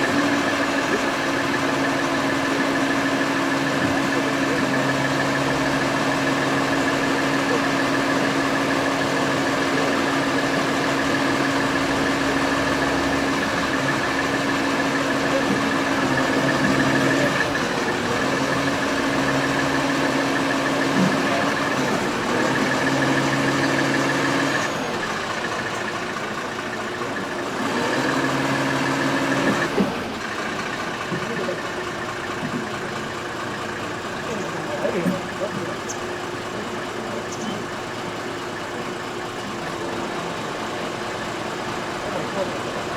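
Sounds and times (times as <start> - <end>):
engine idling hum: 0.0 - 42.9.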